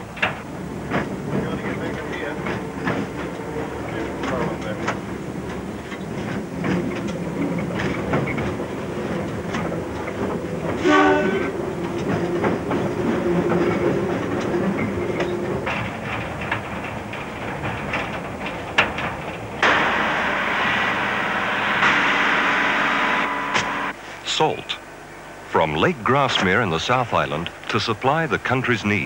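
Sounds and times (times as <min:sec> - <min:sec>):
wheels clicking over rail joints: 0:00.0 - 0:20.1
locomotive horn blast: 0:02.0 - 0:04.8, 0:10.7 - 0:11.8, 0:19.6 - 0:24.0.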